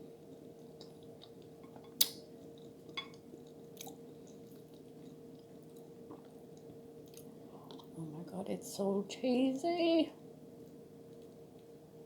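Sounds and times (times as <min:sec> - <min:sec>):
chewing lasagna: 0:00.0 - 0:08.0, 0:10.5 - 0:11.8
faint steady hum: 0:00.0 - 0:12.0
wet mouth clicks: 0:00.8 - 0:02.2.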